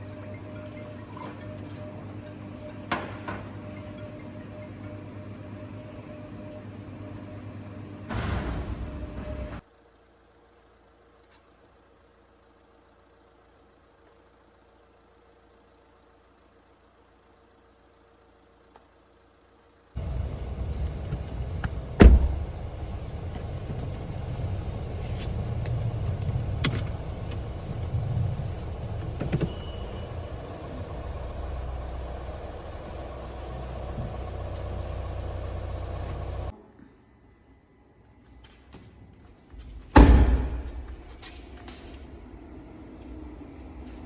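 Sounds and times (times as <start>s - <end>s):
car engine rumble: 0.0s - 36.6s, 39.0s - 44.0s
car door shutting: 21.1s - 22.5s.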